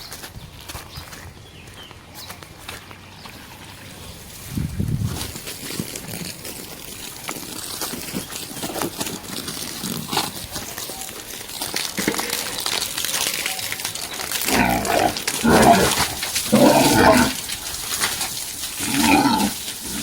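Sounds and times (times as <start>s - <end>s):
water splashing and trickling: 3.2s - 20.0s
pig grunt: 14.3s - 17.6s, 18.7s - 20.0s.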